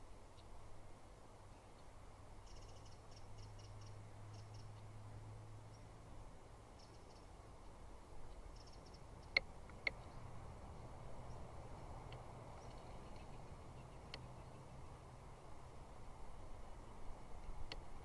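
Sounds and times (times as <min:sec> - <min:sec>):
sharp clicks: 0:09.2 - 0:10.1.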